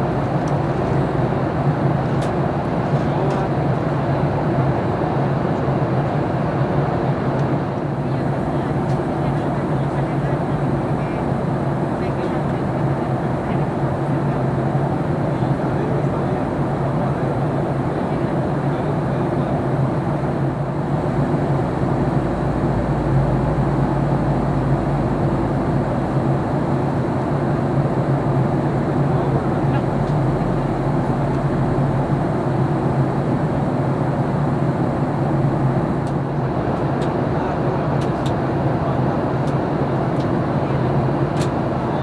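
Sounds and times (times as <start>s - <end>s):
airliner cabin drone: 0.0s - 3.9s, 7.8s - 40.2s
deep rumble: 8.4s - 36.2s.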